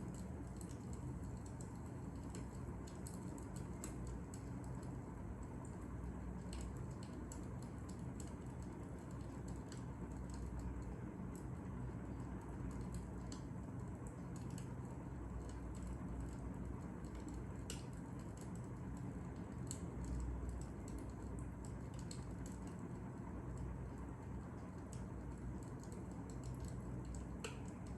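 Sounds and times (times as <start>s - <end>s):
fire crackling: 0.0s - 27.9s.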